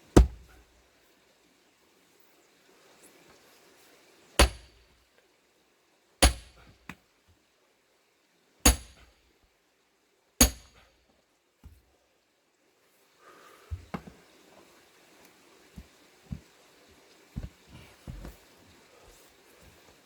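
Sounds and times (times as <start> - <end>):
axe blows splitting log: 4.4 - 4.8, 6.2 - 6.7.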